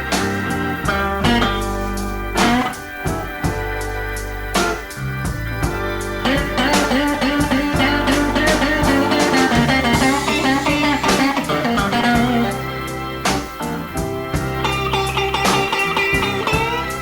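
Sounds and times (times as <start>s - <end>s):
bass: 0.0s - 17.0s
electric guitar bending riff: 0.0s - 17.0s
steady beat: 0.0s - 17.0s.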